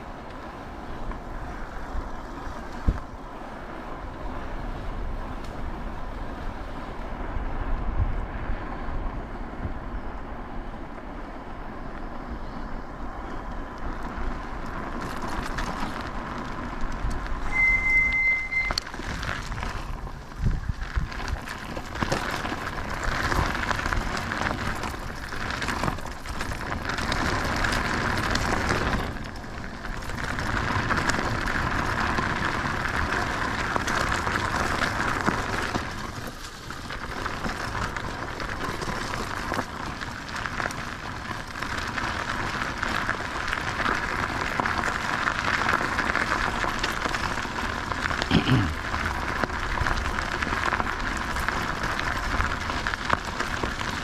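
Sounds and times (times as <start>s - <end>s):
wind over microphone: 0.0s - 48.0s
bicycle tyre noise: 0.0s - 54.0s
short rising squeak: 17.5s - 18.8s.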